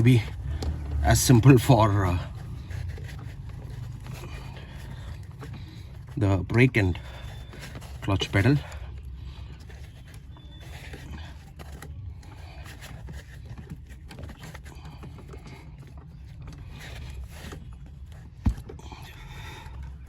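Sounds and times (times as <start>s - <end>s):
rubbing and handling noises: 0.0s - 20.0s.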